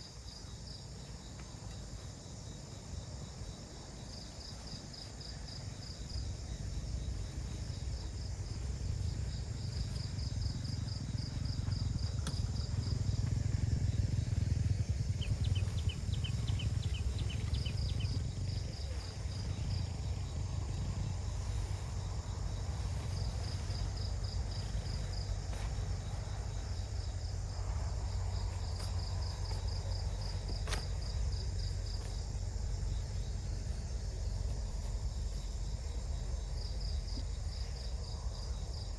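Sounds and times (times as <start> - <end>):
insects chirping: 0.0 - 38.9
steady low rumble: 0.0 - 38.9
faint clicks: 12.1 - 12.5.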